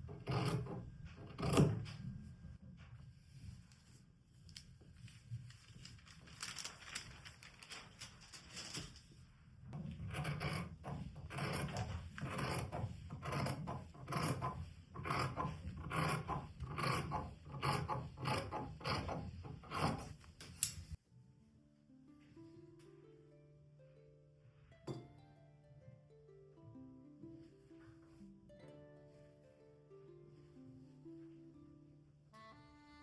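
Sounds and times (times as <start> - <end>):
fabric rustling and scraping: 1.9 - 9.7.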